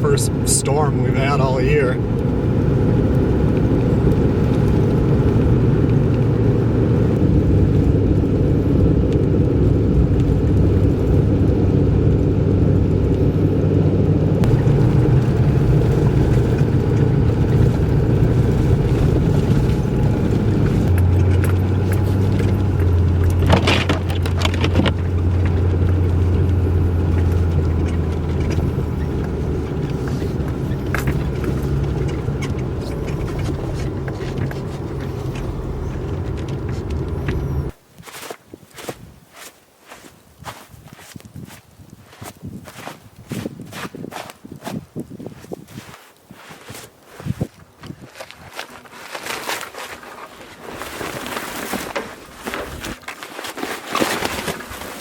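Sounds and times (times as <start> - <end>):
vehicle engine drone: 0.0 - 37.8
road noise: 0.0 - 55.0
clicks or rattles: 20.7 - 26.1.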